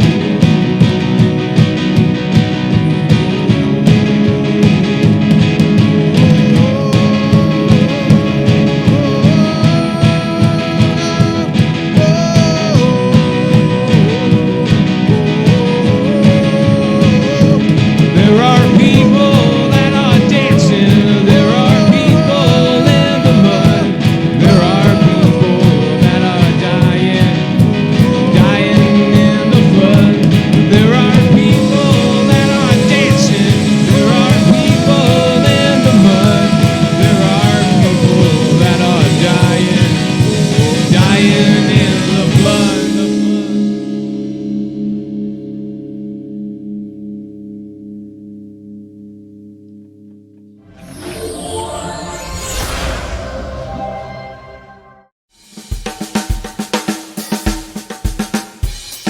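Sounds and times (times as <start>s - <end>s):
steady drum beat: 0.0s - 43.6s, 55.4s - 59.0s
rock band playing: 0.0s - 45.9s, 50.6s - 59.0s
lead guitar line bending: 0.0s - 55.2s
ringing chord: 50.6s - 55.2s.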